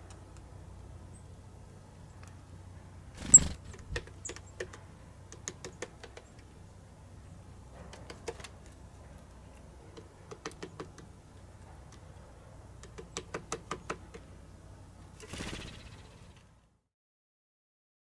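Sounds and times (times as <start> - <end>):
woodpecker pecking at feeder: 3.2 - 6.5, 7.9 - 12.0, 12.8 - 14.3.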